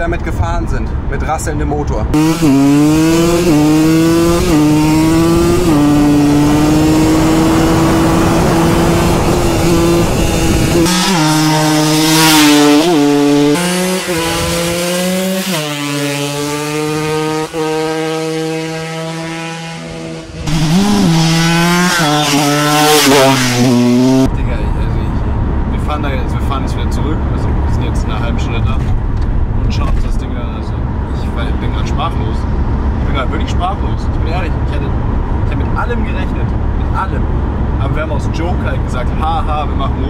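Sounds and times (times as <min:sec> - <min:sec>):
dirt bike engine revving: 0:02.2 - 0:24.3.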